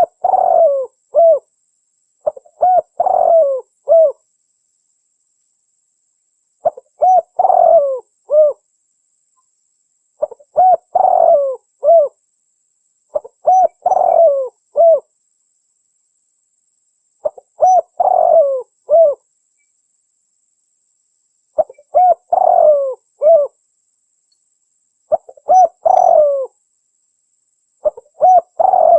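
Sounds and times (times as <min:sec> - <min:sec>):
dove cooing: 0:00.0 - 0:01.5, 0:02.2 - 0:04.2, 0:06.6 - 0:08.6, 0:10.2 - 0:12.2, 0:13.1 - 0:15.1, 0:17.2 - 0:19.2, 0:21.6 - 0:23.6, 0:25.1 - 0:26.6, 0:27.8 - 0:28.9.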